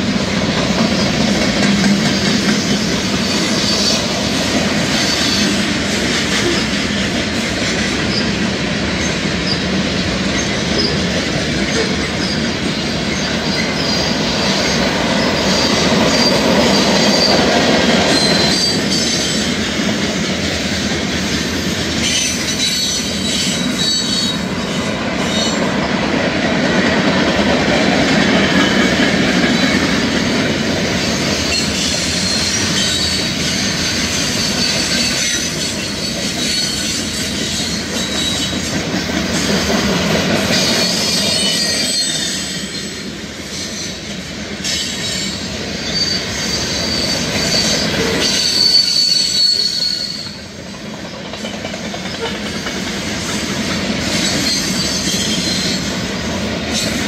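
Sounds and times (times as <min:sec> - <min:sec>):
train wheels rumbling on rail: 0:00.0 - 0:57.0
high wheel squeal: 0:02.1 - 0:04.2, 0:04.9 - 0:05.6, 0:11.7 - 0:17.5, 0:18.1 - 0:19.6, 0:22.0 - 0:25.7, 0:31.0 - 0:38.6, 0:40.5 - 0:50.5, 0:54.0 - 0:56.0.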